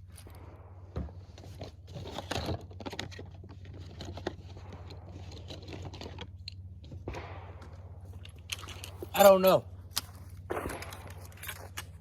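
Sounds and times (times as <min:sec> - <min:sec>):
steady low hum: 0:00.0 - 0:12.0
rustling and crinkling: 0:01.0 - 0:07.1.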